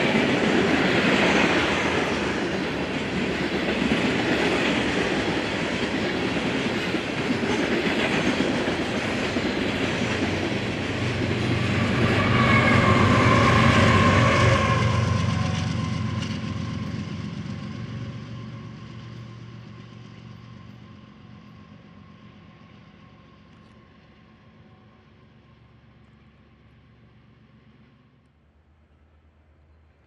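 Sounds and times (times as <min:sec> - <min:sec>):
freight train wheels clattering: 0:00.0 - 0:21.5.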